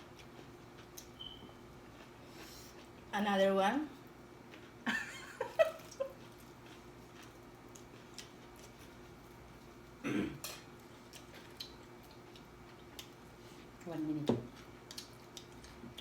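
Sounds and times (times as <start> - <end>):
faint steady hum: 0.0 - 16.0
person coughing: 10.0 - 10.5.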